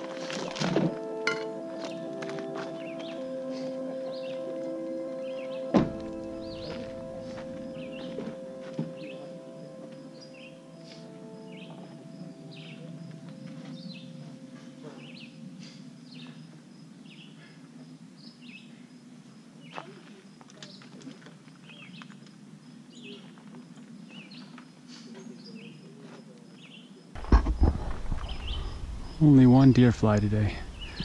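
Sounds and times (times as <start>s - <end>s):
small birds chirping: 1.8s - 19.0s, 19.6s - 31.0s.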